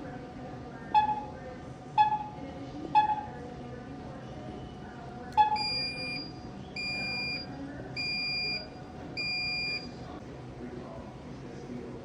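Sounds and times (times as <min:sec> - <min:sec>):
high-pitched electronic beeps: 0:05.4 - 0:07.4.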